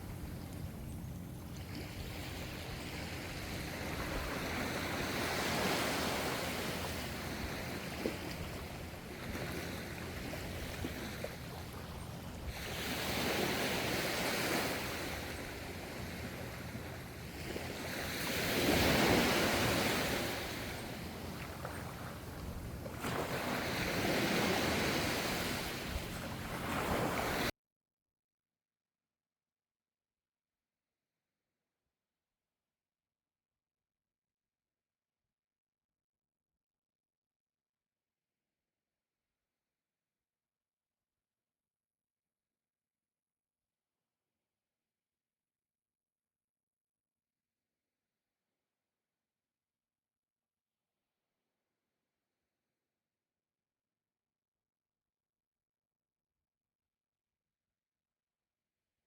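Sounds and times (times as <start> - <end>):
ocean waves washing ashore: 0.0 - 27.5.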